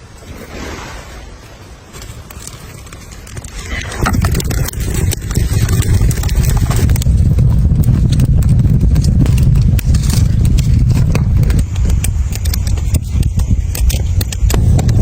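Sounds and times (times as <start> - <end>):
wood fire crackling: 1.9 - 15.0
storm wind rumbling: 3.2 - 15.0.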